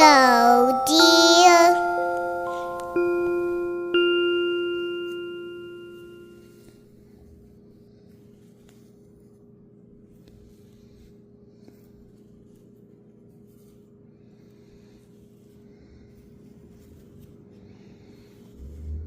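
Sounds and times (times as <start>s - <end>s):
chime-like struck note ringing: 0.0s - 6.7s
faint steady hum: 0.0s - 19.0s.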